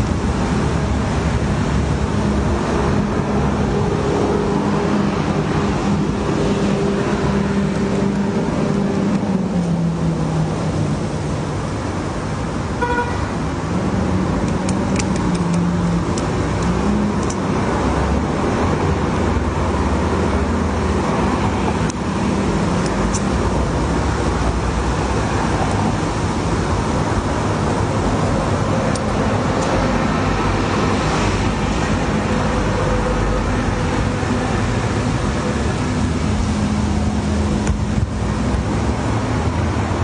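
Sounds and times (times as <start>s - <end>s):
street traffic engine hum: 0.0s - 40.0s
car horn toot: 12.8s - 13.3s
sharp clicks: 14.4s - 17.4s.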